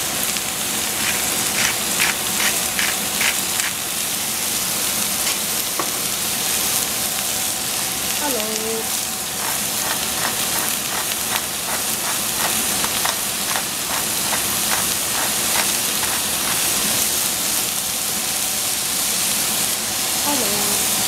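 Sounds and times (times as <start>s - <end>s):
mushrooms sizzling in a pan: 0.0s - 21.0s
pepper mill clicking: 0.9s - 3.8s, 9.4s - 17.1s.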